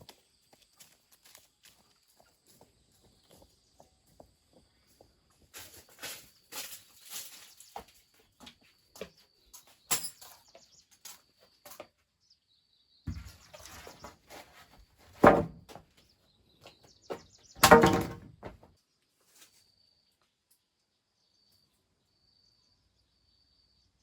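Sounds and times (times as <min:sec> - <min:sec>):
knocks and clatters: 0:17.1 - 0:18.6.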